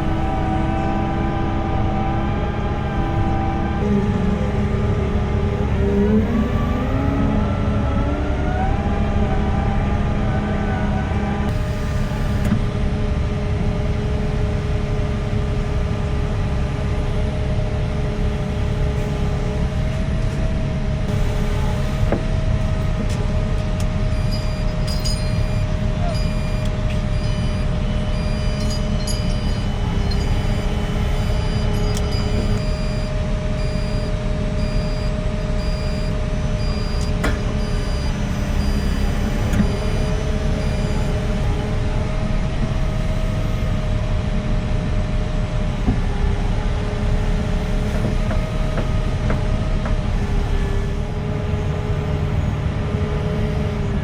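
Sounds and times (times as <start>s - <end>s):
excavator diesel engine rumbling: 0.0s - 54.0s.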